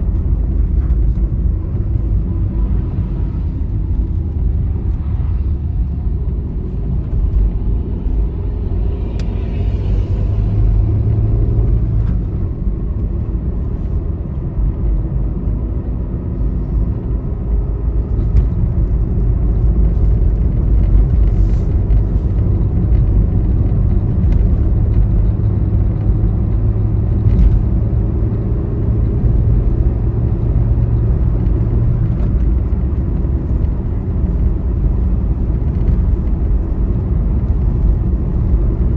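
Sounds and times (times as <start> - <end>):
vehicle engine and tyre rumble: 0.0 - 38.9.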